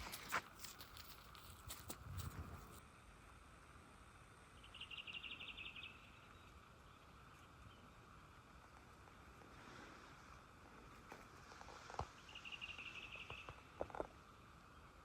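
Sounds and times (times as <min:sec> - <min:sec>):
songbird trilling: 0:04.6 - 0:06.1, 0:12.2 - 0:13.6.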